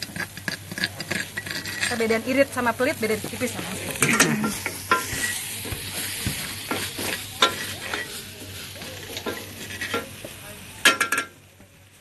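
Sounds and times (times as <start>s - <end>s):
spoon clinking and scraping pan: 0.0s - 2.2s, 4.0s - 5.4s, 6.7s - 8.2s, 9.1s - 10.1s
paste sizzling in hot oil: 0.0s - 11.0s.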